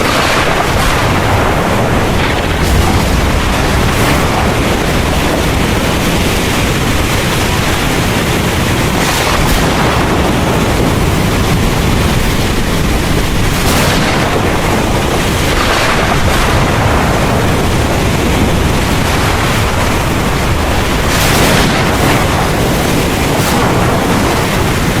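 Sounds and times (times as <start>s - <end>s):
heavy rain pouring: 0.0s - 25.0s
thunder rumble: 0.0s - 25.0s.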